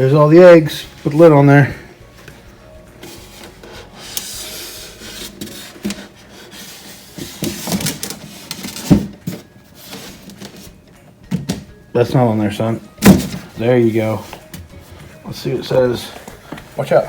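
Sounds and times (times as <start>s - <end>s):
lid scraping and rubbing: 3.0s - 10.8s.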